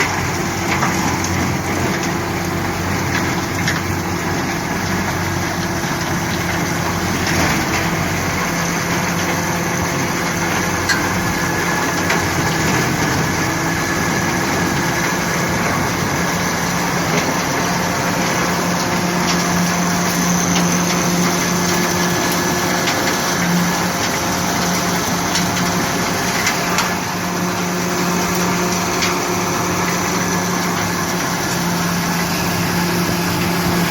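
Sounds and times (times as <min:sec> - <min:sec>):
engine humming: 0:00.0 - 0:33.9.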